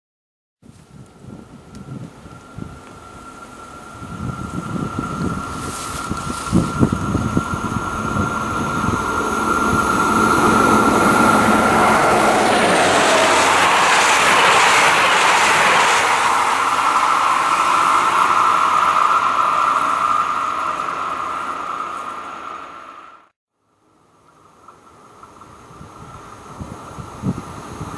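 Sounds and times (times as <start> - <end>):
train rushing rumble: 1.2 - 23.3
high-pitched whine: 1.5 - 23.3.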